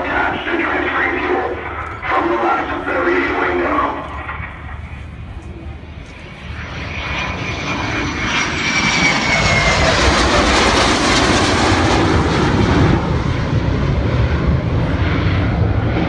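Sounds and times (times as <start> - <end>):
high whine: 0.0 - 16.0
jet engine rush: 0.0 - 16.0.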